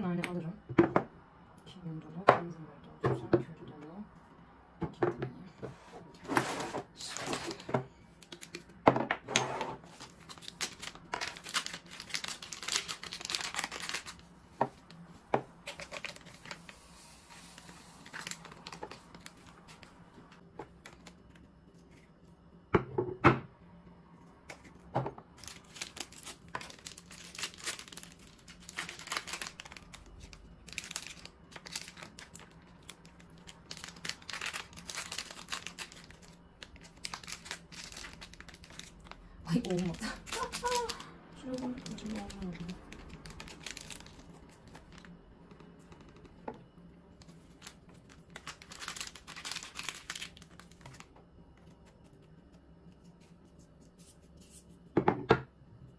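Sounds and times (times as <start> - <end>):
plastic packets crinkling and tearing: 10.0 - 14.3, 15.6 - 16.8, 17.6 - 20.0, 25.3 - 45.2, 47.2 - 51.9.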